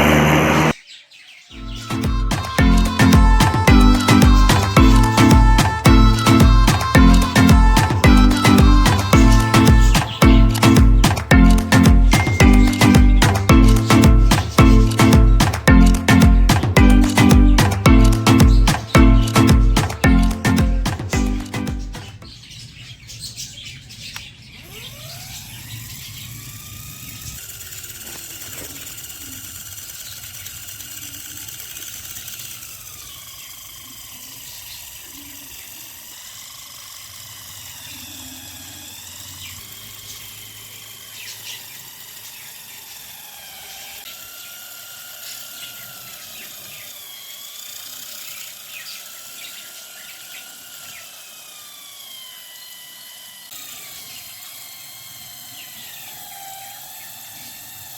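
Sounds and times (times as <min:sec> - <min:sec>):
electric motor whining: 0:00.0 - 0:00.8, 0:01.6 - 0:22.3, 0:24.2 - 0:57.9.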